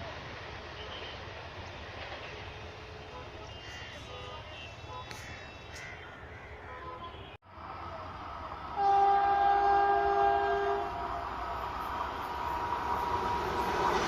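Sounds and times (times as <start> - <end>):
train running: 0.0 - 5.4, 6.2 - 14.0
locomotive horn blast: 8.8 - 11.1.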